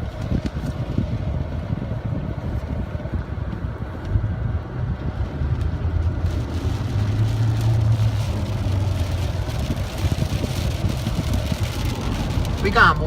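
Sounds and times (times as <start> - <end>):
low steady rumble: 0.0 - 13.0
heavy rain hissing: 6.3 - 13.0.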